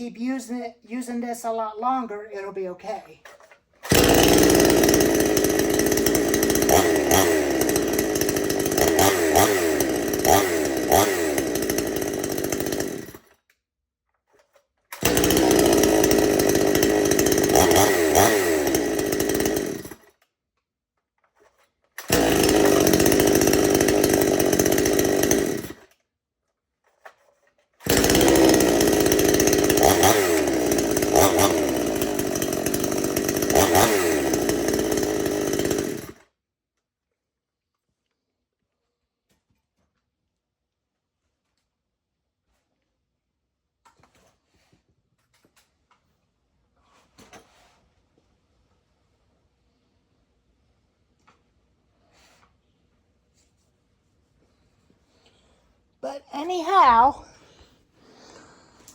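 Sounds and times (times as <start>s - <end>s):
chainsaw revving: 3.8s - 13.3s, 14.9s - 20.1s, 22.0s - 26.0s, 27.8s - 36.2s, 56.1s - 58.9s.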